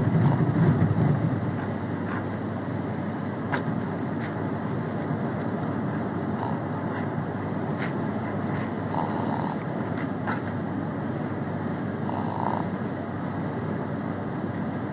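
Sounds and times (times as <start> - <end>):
dog snoring: 0.0 - 0.8, 2.8 - 3.5, 6.4 - 6.7, 8.8 - 9.7, 11.8 - 12.8
car cabin road noise: 0.0 - 8.9.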